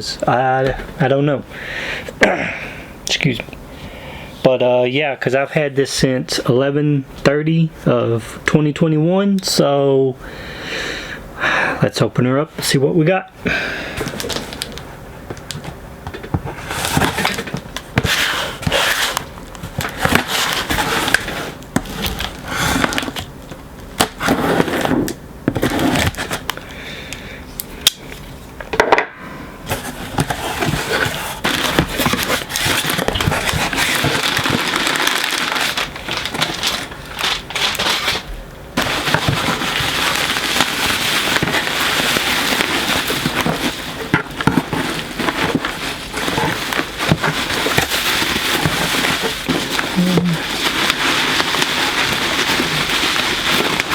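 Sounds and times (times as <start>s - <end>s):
packing material crinkling: 13.9s - 15.8s, 16.5s - 26.6s, 29.7s - 53.9s.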